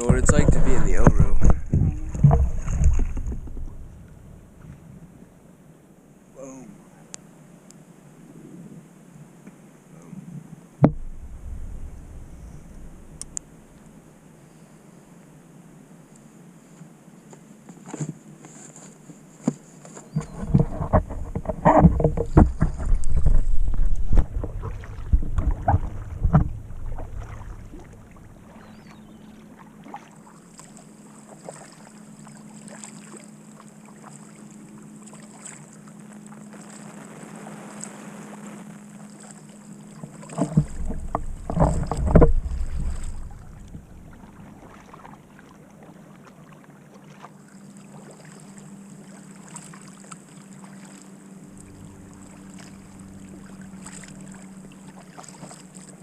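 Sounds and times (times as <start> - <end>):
low bumping and buffeting: 0.0 - 5.2, 10.8 - 14.0, 20.2 - 29.3, 40.4 - 44.7
paddle dipping and dripping: 0.0 - 5.2, 10.8 - 14.1, 19.4 - 37.0, 38.9 - 56.0
steady low hum: 0.0 - 8.8, 9.9 - 16.7, 20.1 - 46.2.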